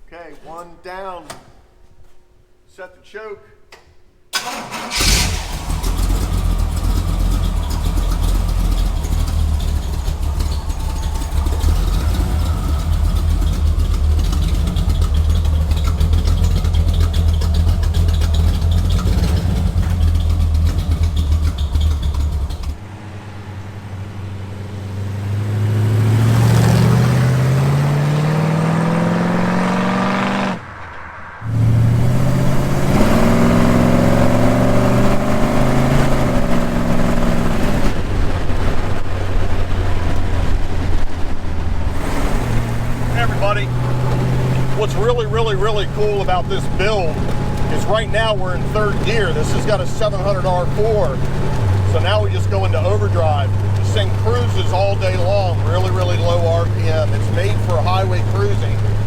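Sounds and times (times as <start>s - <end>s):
car engine fast idle: 4.4s - 22.8s
car engine accelerating: 4.4s - 59.0s.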